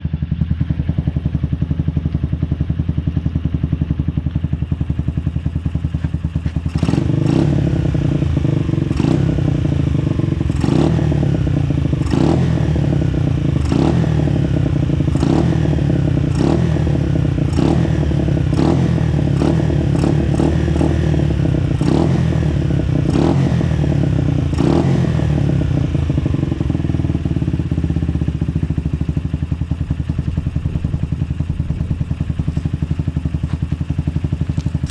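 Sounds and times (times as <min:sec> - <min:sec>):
motorcycle engine running: 0:00.0 - 0:34.9
exhaust cracks: 0:34.4 - 0:34.9.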